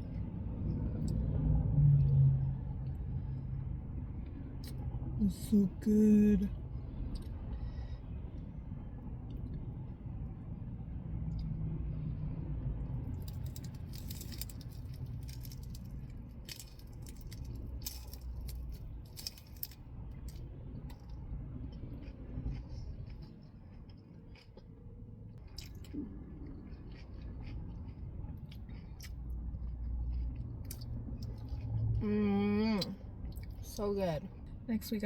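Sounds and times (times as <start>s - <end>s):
low steady rumble: 0.0s - 35.0s
crisp lettuce crunching: 13.2s - 20.4s.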